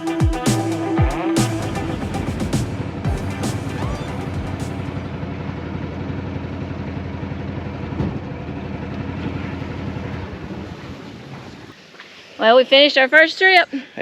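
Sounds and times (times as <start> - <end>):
small engine running: 1.6 - 11.7.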